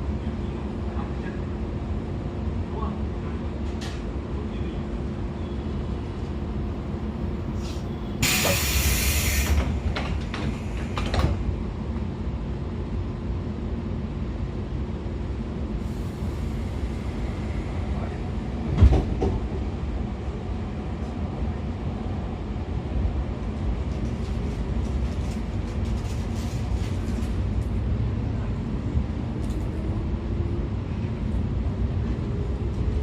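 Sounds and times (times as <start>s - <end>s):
train interior rumble: 0.0s - 33.0s
thump: 18.7s - 19.4s.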